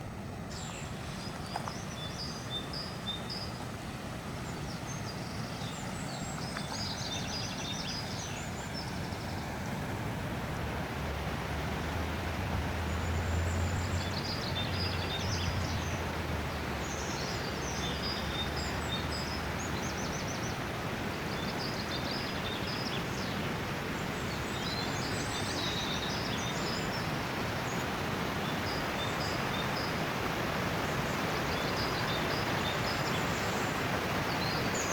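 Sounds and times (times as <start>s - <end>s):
outdoor background hiss: 0.0s - 34.9s.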